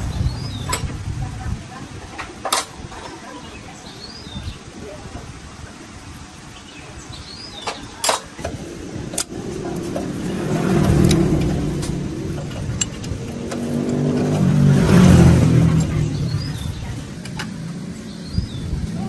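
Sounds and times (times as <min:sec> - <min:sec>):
motor vehicle engine: 0:08.4 - 0:19.0.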